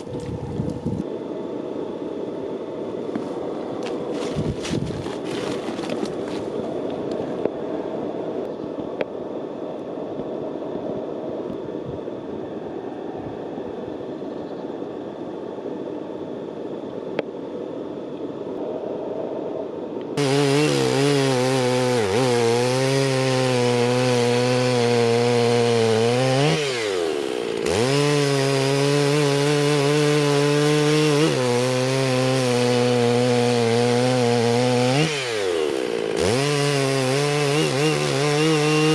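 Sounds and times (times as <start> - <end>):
chainsaw engine whine: 3.1 - 8.2, 20.2 - 38.9.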